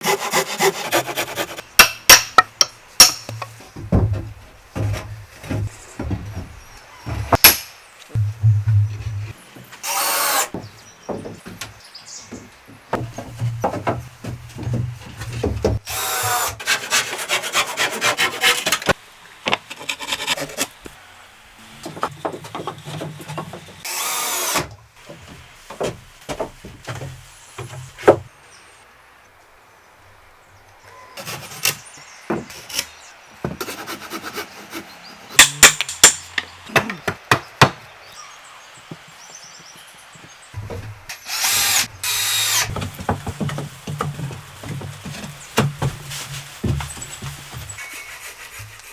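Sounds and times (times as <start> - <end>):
sawing and rubbing wood: 0.0 - 1.7, 13.0 - 19.0, 19.7 - 20.8, 31.2 - 31.8, 32.4 - 35.2, 40.6 - 48.9.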